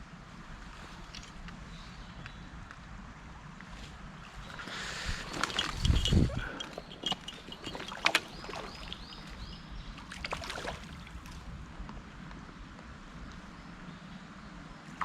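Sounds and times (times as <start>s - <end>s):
stream water splashing: 4.4s - 11.5s.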